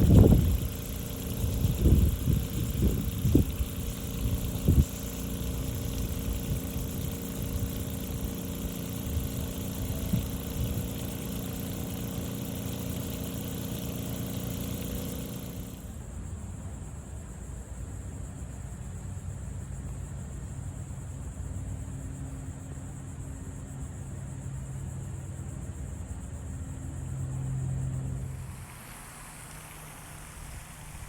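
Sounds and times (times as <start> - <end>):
engine idling: 0.0 - 16.1, 28.0 - 31.0.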